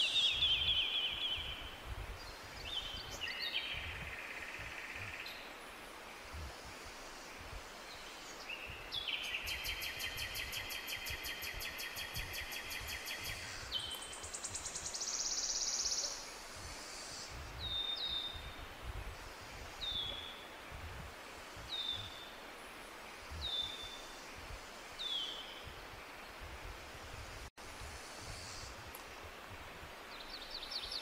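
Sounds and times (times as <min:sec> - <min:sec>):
low wind rumble: 0:00.0 - 0:10.6, 0:16.3 - 0:31.0
songbirds singing: 0:00.0 - 0:26.8, 0:30.0 - 0:31.0.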